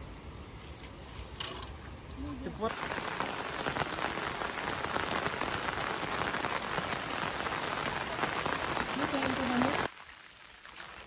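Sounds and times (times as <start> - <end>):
heavy rain falling: 2.7 - 11.0.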